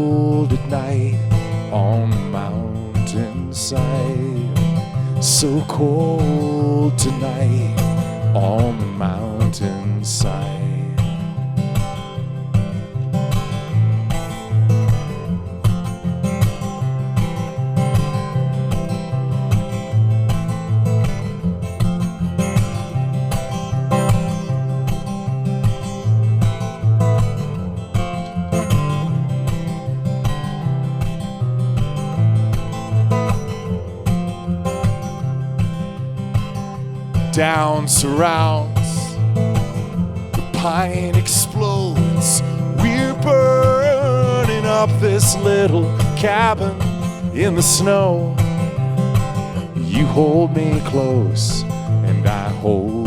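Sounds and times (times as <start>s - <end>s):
acoustic guitar strumming: 0.0s - 53.0s.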